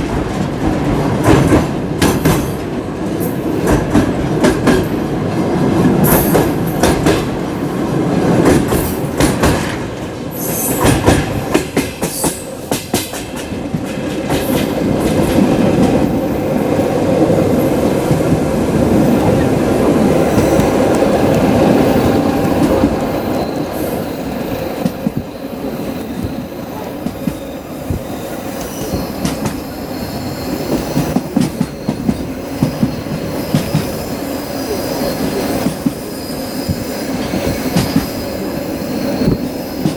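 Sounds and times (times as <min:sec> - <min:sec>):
train clickety-clack on rail joints: 0:00.0 - 0:39.9
train wheel and brake squeal: 0:10.3 - 0:11.2, 0:20.1 - 0:39.9.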